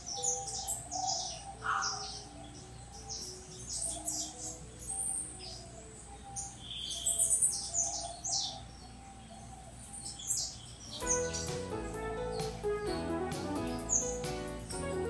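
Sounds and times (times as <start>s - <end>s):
background music: 0.0s - 6.8s, 10.9s - 15.0s
small birds chirping: 0.0s - 15.0s.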